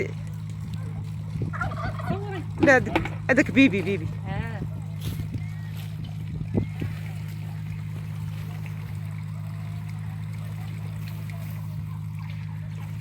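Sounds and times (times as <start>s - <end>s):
vehicle engine drone: 0.0s - 13.0s.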